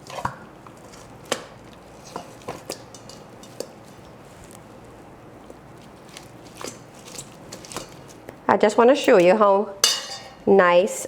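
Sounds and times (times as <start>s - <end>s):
utensils clinking against dish: 2.0s - 4.2s, 9.8s - 10.4s.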